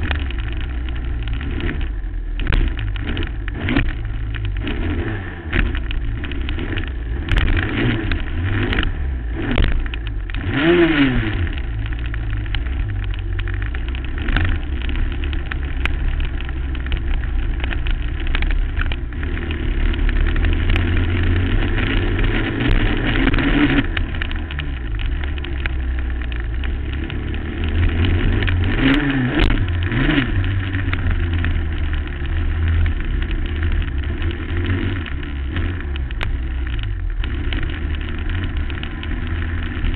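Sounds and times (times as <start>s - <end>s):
low rumble: 0.0s - 39.9s
quad engine revving: 0.0s - 39.9s.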